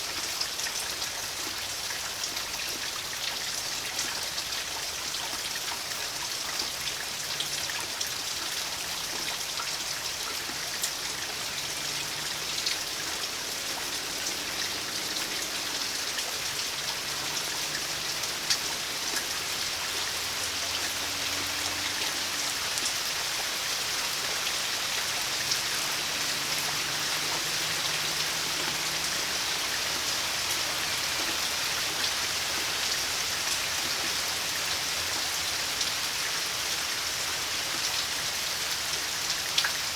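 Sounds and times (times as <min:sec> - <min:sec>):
raindrops ticking on surfaces: 0:00.0 - 0:39.9
steady rain falling: 0:00.0 - 0:39.9.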